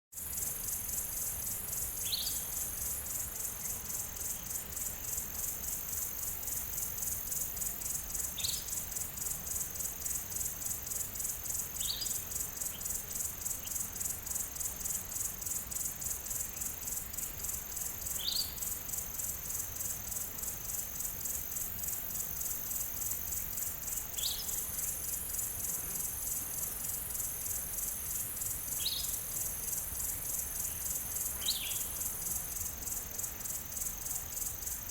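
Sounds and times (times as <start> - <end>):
insect chorus trilling: 0.2 - 34.9
bird chirping: 2.0 - 2.5, 28.8 - 29.2, 30.7 - 32.0.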